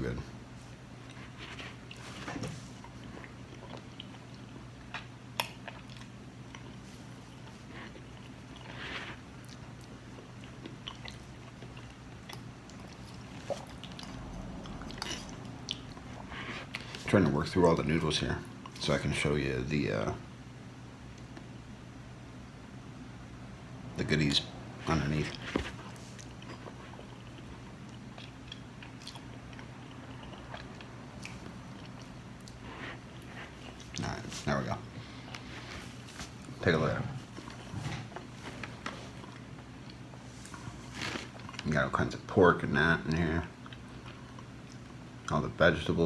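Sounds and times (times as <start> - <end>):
low steady hum: 0.0 - 46.0
person chewing food: 0.7 - 17.0, 25.3 - 36.6, 37.2 - 41.6, 43.6 - 45.0.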